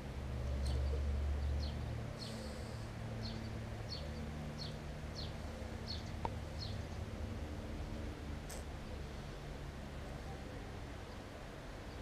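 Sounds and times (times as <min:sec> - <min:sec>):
bird chirping: 0:00.4 - 0:07.1.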